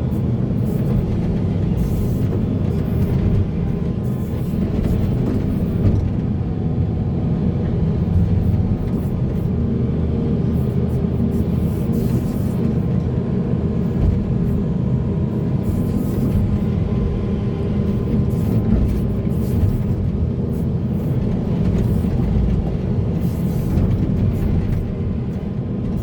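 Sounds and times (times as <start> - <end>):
diesel engine drone: 0.0 - 26.0
clatter and scraping: 0.1 - 6.4, 17.8 - 26.0.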